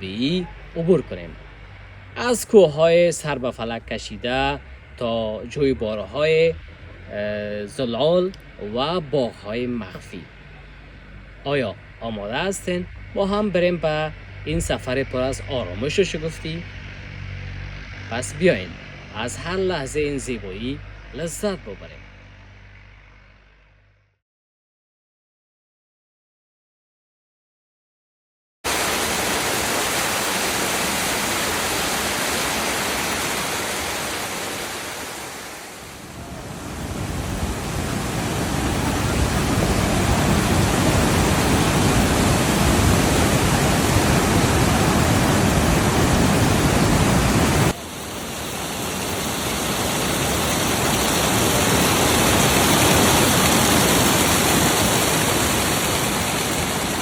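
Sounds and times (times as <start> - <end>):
fast-flowing mountain water: 28.7 - 57.0.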